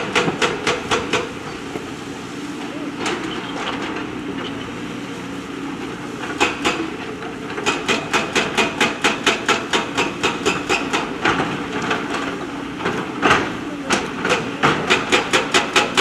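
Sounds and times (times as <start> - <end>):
machinery knocking on hard material: 0.0 - 2.2, 6.2 - 16.0
diesel engine running: 0.0 - 16.0.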